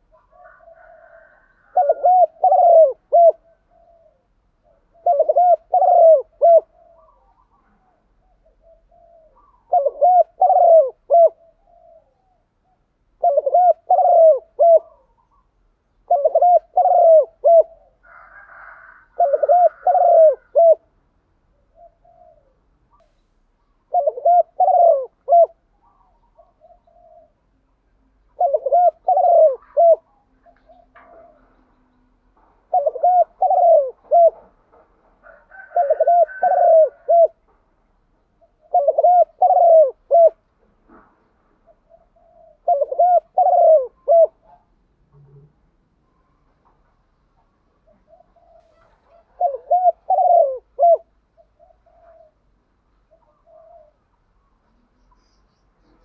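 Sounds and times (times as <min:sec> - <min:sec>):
dove cooing: 0:00.0 - 0:23.0, 0:23.8 - 0:37.4, 0:38.3 - 0:45.5, 0:46.3 - 0:55.2
faint higher bird chirping: 0:06.6 - 0:10.5, 0:21.5 - 0:24.2, 0:25.6 - 0:32.3, 0:51.0 - 0:56.0.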